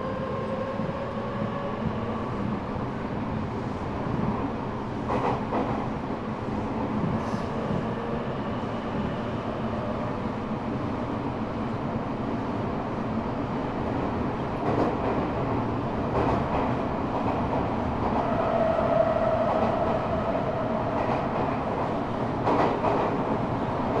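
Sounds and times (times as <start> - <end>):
train wheels rumbling on rails: 0.0 - 24.0
rail joint clicks: 5.0 - 5.9, 14.5 - 18.4, 20.9 - 23.4.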